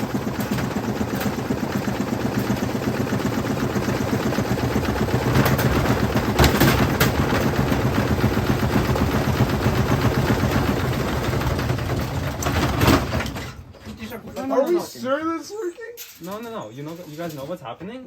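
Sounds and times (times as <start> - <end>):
washing machine drum rattling: 0.0 - 15.0, 16.0 - 17.7
heavy knocks: 5.3 - 9.2.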